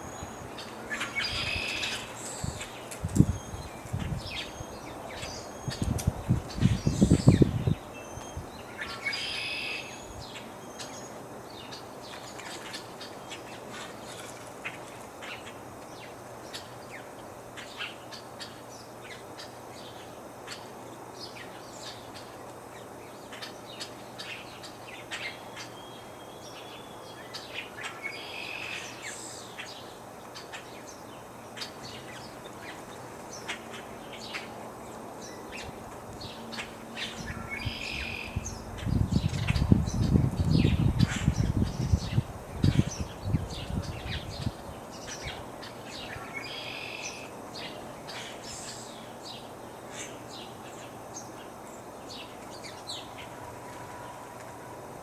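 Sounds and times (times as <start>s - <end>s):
small birds chirping: 0.0s - 53.4s
breeze hiss: 41.9s - 55.0s.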